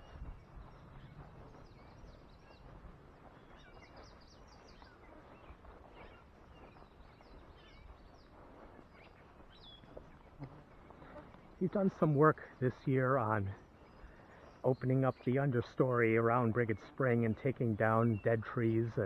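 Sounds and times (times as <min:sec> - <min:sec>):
low steady outdoor noise: 0:00.0 - 0:19.0
songbird chirps: 0:00.0 - 0:19.0.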